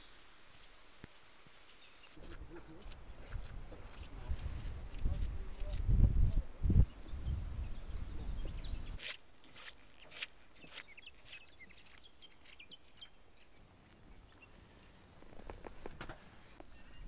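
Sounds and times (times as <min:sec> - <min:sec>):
faint small birds chirping: 0:06.8 - 0:17.0.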